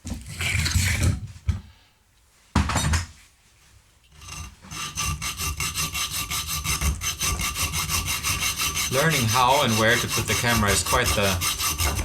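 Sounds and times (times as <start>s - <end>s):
hand file rasping: 4.2s - 12.0s.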